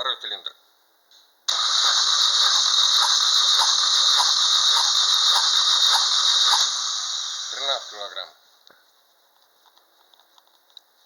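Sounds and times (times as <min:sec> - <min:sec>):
starter motor cranking engine: 0:01.5 - 0:07.8.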